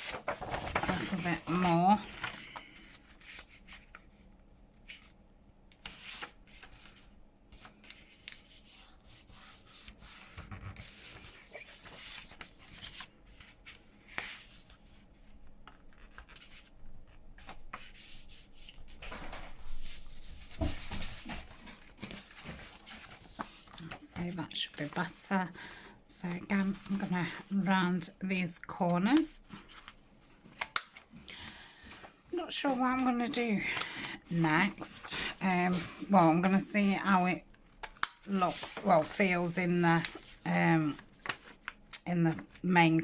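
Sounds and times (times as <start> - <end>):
paper rustling: 0.0 - 4.2, 5.8 - 27.7, 29.1 - 43.0.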